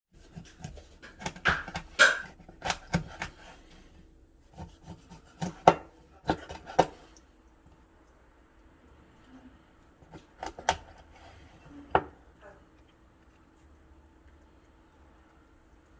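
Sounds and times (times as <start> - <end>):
knife cutting on cutting board: 0.2 - 3.7, 4.4 - 7.0.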